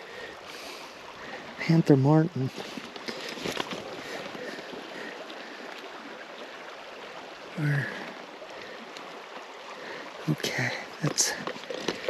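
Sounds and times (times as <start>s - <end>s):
river water flowing: 0.0s - 12.0s
man's voice murmuring: 7.6s - 8.1s.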